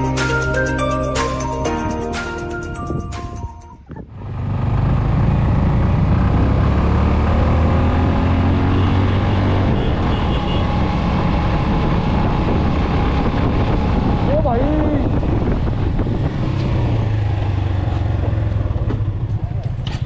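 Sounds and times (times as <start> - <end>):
background music: 0.0 - 3.9
road noise rushing: 4.0 - 20.0
motorcycle engine running: 4.1 - 20.0.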